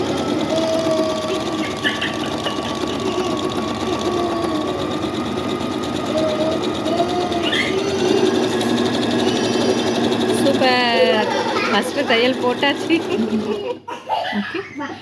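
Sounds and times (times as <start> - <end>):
sewing machine stitching: 0.0 - 13.9.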